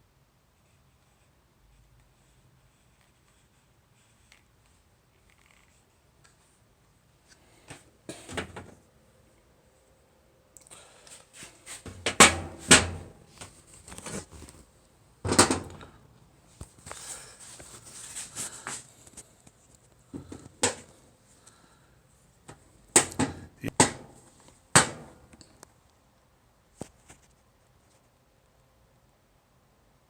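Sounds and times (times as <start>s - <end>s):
soft rubbing: 16.7s - 19.1s.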